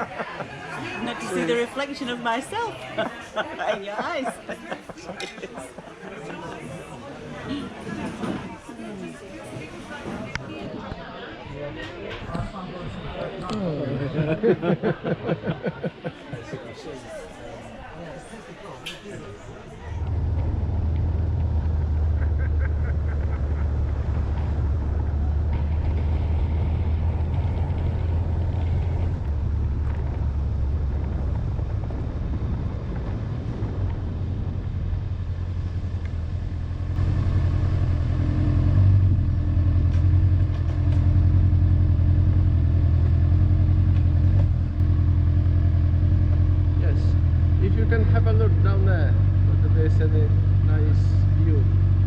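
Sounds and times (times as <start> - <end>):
motorcycle engine running: 20.0 - 52.0.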